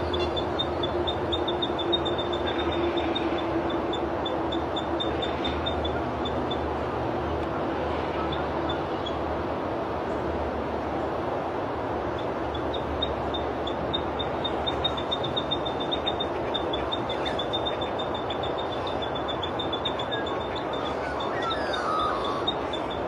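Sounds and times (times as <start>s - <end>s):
steady rushing background noise: 0.0s - 23.0s.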